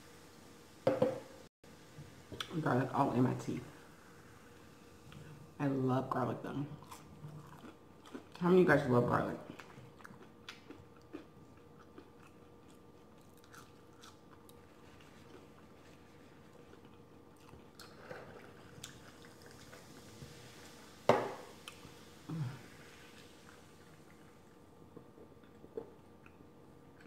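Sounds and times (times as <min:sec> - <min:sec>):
can knocking on table: 0:00.8 - 0:01.3, 0:21.1 - 0:21.4
chewing with small crunches: 0:06.7 - 0:08.5, 0:09.4 - 0:20.8, 0:23.1 - 0:27.0.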